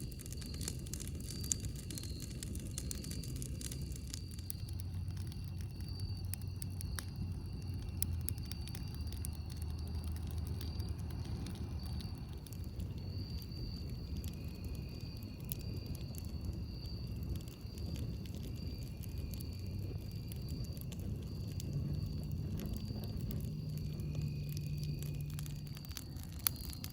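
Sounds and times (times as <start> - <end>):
campfire crackling and popping: 0.0 - 26.9.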